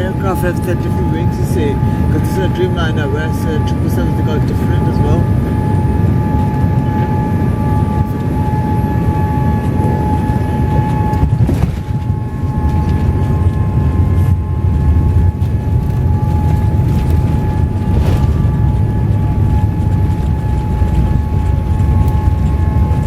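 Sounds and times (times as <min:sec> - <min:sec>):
jet engines and airflow rumble: 0:00.0 - 0:23.0
steady whine: 0:00.0 - 0:23.0.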